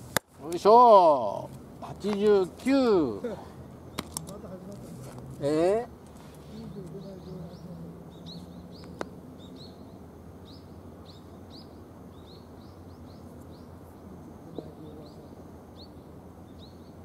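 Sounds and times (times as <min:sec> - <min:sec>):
low outdoor hum: 0:00.0 - 0:17.0
small bird chirping: 0:06.2 - 0:17.0.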